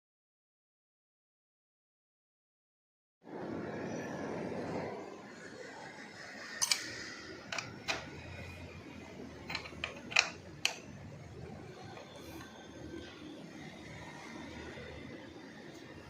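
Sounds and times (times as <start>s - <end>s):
allen key clicking on screws: 6.6s - 6.9s, 9.4s - 10.8s.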